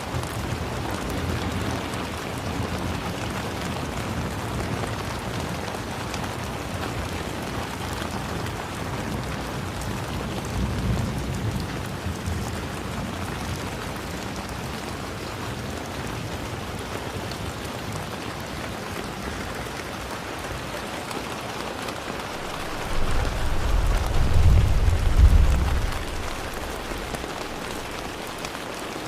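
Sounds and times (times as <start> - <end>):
rain pattering on surfaces: 0.0 - 29.0
low rumble: 22.2 - 28.3.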